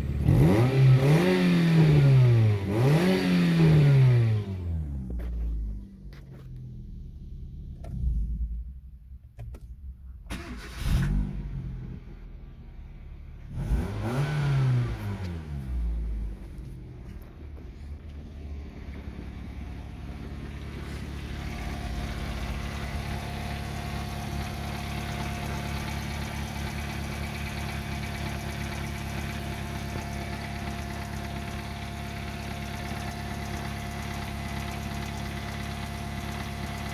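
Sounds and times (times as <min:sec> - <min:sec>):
car engine idling: 0:00.0 - 0:01.6, 0:11.4 - 0:36.9.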